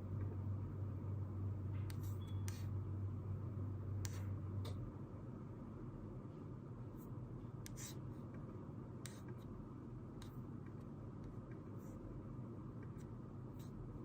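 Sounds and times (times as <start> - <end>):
low room hum: 0.0 - 14.0
pen scratching on paper: 7.7 - 8.0.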